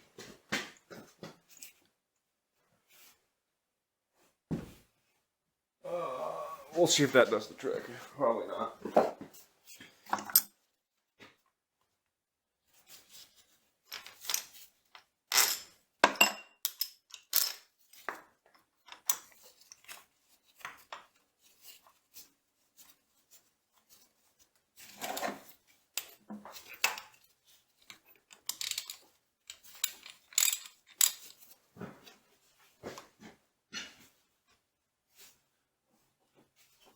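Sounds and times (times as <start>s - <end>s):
hand tools clinking on steel: 27.9s - 31.5s.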